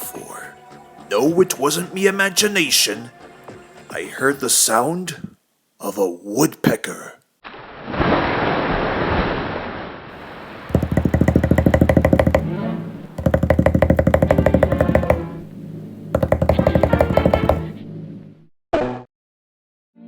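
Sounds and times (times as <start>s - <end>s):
cartoon woodpecker pecking: 10.7s - 12.5s, 13.2s - 15.4s, 16.2s - 17.7s.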